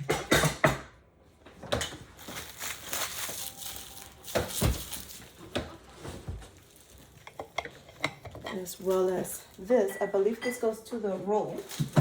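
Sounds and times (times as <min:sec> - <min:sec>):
packaging rustling and crinkling: 0:02.0 - 0:09.9, 0:11.4 - 0:12.0
parts knocking and clattering: 0:04.2 - 0:09.1.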